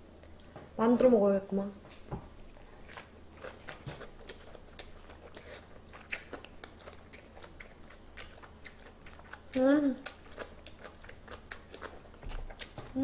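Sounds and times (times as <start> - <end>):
person chewing food: 2.3 - 13.0
wet mouth clicks: 3.6 - 6.5.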